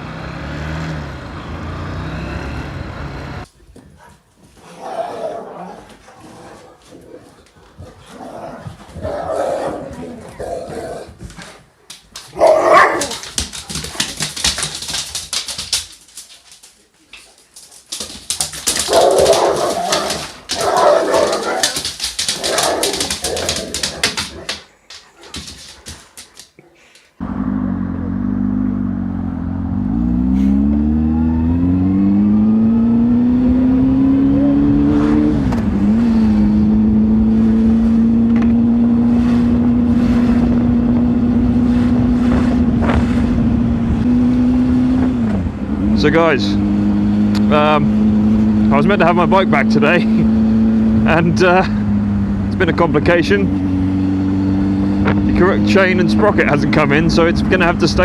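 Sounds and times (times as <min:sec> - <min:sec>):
vehicle engine droning: 0:00.0 - 0:03.5, 0:27.2 - 0:58.0
dog barking: 0:12.3 - 0:13.2, 0:18.7 - 0:21.8.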